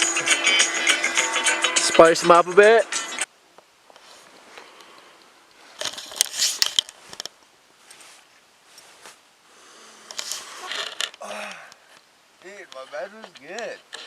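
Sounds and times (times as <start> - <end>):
rustling and clicking handling noise: 3.6 - 9.2, 11.8 - 14.0.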